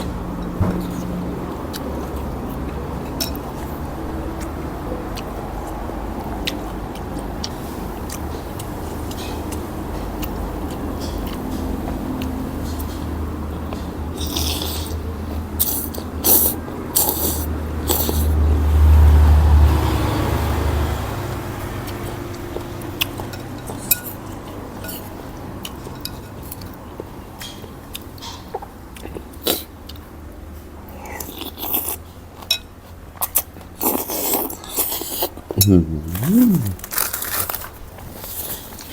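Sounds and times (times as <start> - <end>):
person chewing food: 14.2 - 15.0, 33.2 - 37.1.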